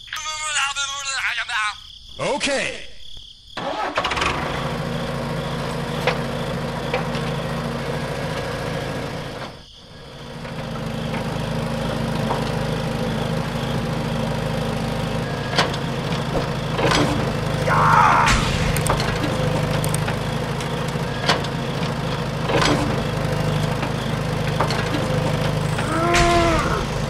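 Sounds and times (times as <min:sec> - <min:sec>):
small motor humming: 0:07.3 - 0:27.0.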